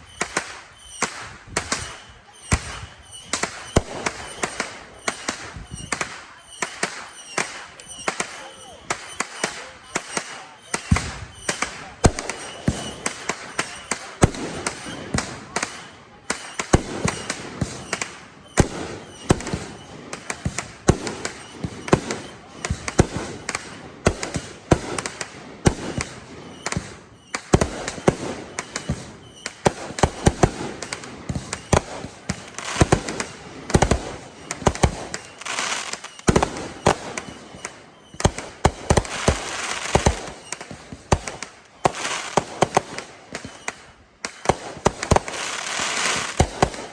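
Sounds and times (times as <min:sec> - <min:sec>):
fireworks bangs: 0:00.0 - 0:46.9
fireworks crackling: 0:00.0 - 0:46.9.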